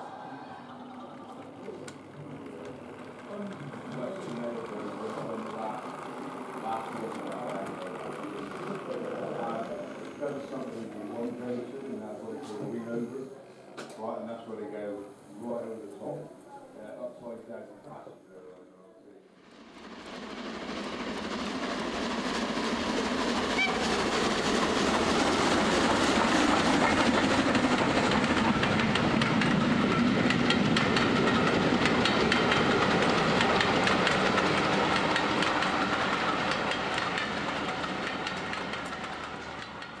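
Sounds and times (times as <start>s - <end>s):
train wheels clickety-clack: 1.9s - 11.1s, 19.7s - 40.0s.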